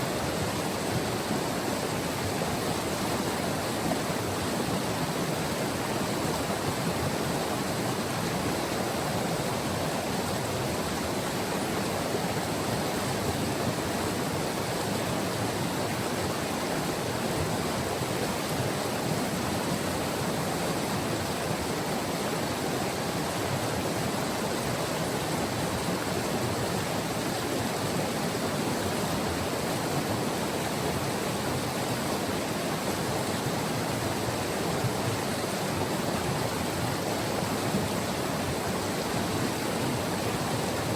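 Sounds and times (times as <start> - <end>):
river rushing: 0.0 - 40.9.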